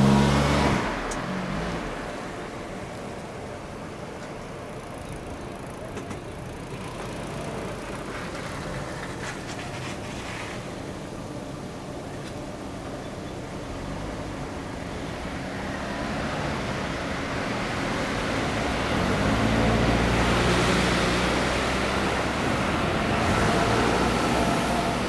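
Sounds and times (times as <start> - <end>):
rolling train wheels: 5.1 - 10.9.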